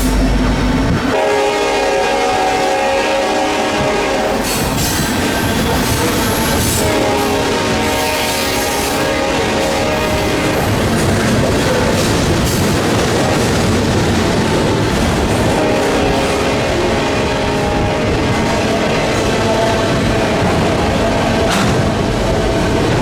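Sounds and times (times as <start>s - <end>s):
freight train rumbling past: 0.0s - 23.0s
locomotive air horn chord: 1.1s - 4.7s, 6.0s - 10.7s, 15.4s - 19.8s
wind on microphone: 3.7s - 23.0s.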